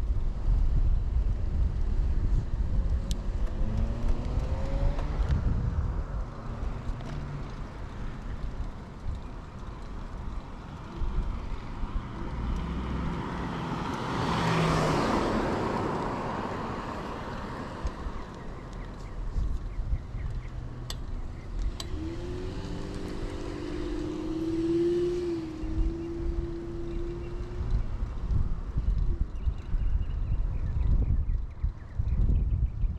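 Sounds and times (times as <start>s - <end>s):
wind and riding noise: 0.0s - 32.9s
car passing: 3.3s - 29.2s.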